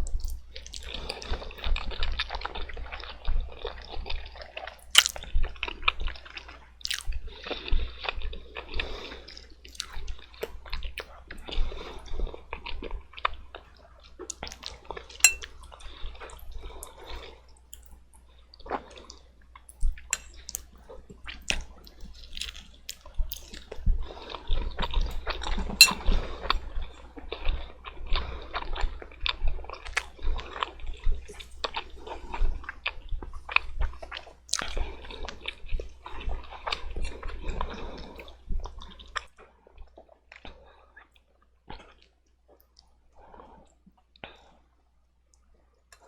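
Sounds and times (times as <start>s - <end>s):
wet chewing: 0.0s - 1.6s, 2.2s - 5.3s, 6.2s - 7.6s, 9.3s - 11.6s, 14.2s - 15.5s, 18.7s - 24.4s, 25.2s - 26.0s
lip smacks: 4.9s - 5.2s, 21.4s - 23.8s.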